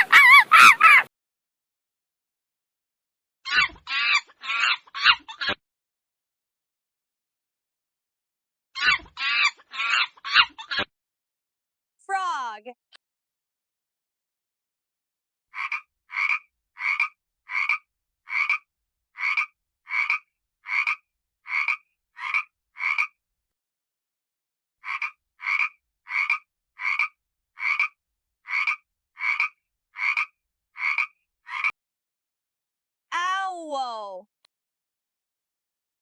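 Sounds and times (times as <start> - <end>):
frog croaking: 15.6 - 23.2, 24.8 - 31.7.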